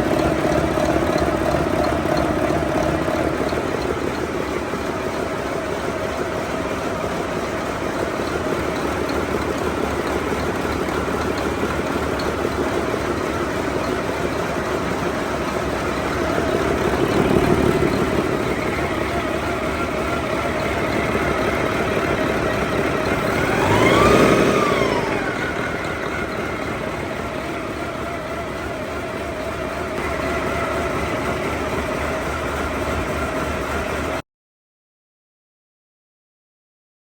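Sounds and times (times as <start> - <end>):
diesel engine idling: 0.0 - 34.2
engine revving: 0.0 - 34.2.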